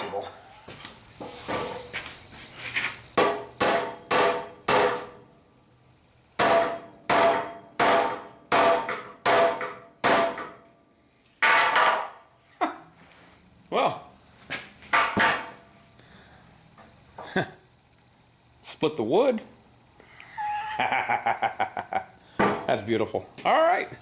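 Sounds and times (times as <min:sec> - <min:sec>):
hammer striking nail into wood: 0:03.2 - 0:05.2, 0:06.4 - 0:10.6.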